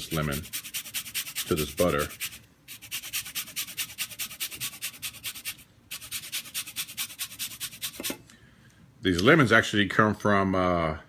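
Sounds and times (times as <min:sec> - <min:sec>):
zester scraping lemon peel: 0:00.0 - 0:08.2.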